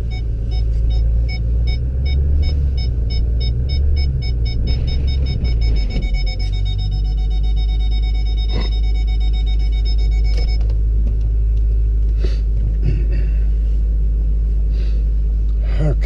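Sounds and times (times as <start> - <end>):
high electronic beeping: 0.0 - 10.6
heavy engine rumble: 0.0 - 16.0.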